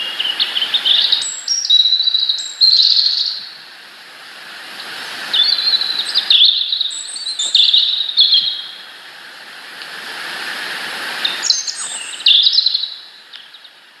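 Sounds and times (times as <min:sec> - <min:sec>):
small birds chirping: 0:00.0 - 0:03.6, 0:04.8 - 0:08.9, 0:11.2 - 0:13.9
background hiss: 0:00.0 - 0:14.0.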